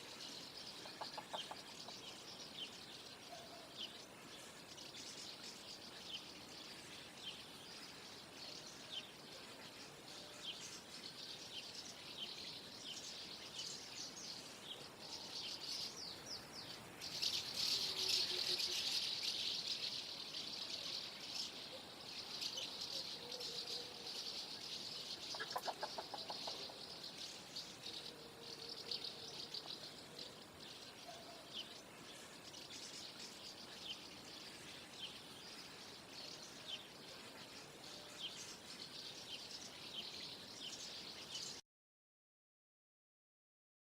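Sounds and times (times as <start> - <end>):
house martins twittering: 17.0 - 27.9.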